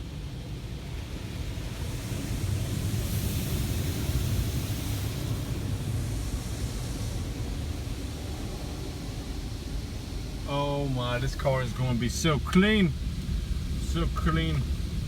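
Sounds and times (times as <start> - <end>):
car wash water spraying: 0.4 - 15.0
low rumble: 10.2 - 15.0.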